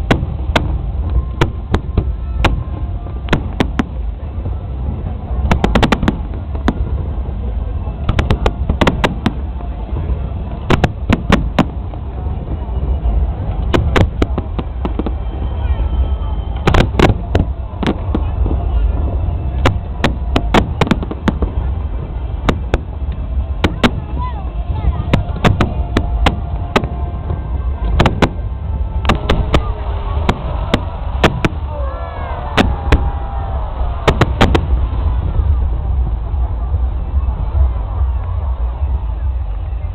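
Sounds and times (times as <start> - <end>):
fireworks bangs: 0.0 - 39.4
low rumble: 0.0 - 39.9.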